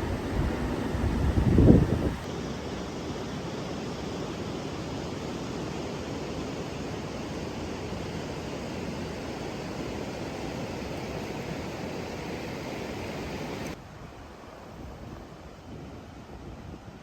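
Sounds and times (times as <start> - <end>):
rushing water: 5.8 - 16.0.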